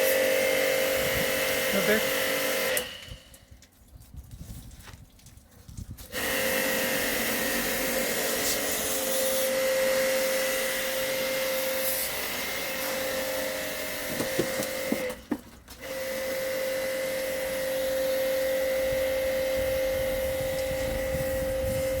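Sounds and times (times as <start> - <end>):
small electric motor whining: 6.0 - 22.0.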